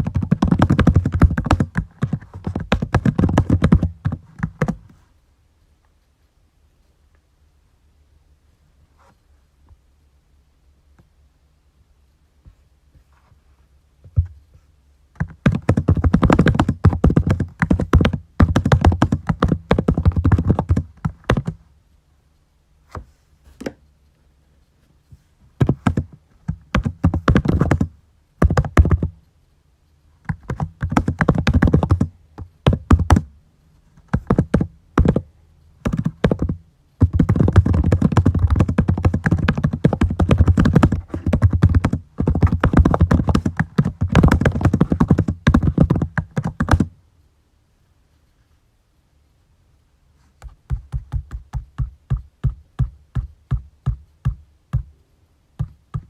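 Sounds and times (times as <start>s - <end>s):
computer keyboard typing: 35.9s - 46.9s.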